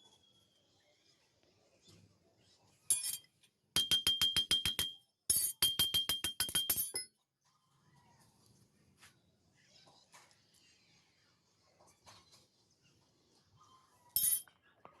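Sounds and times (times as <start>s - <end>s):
metal tool tapping on steel: 2.9s - 7.1s, 14.2s - 14.5s.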